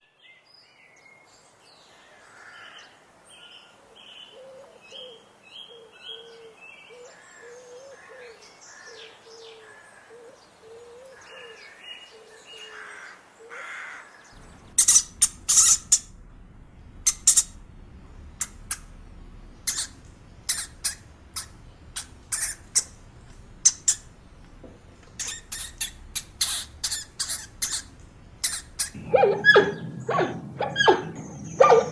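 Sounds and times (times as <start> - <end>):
short low animal calls: 29.0 - 31.9.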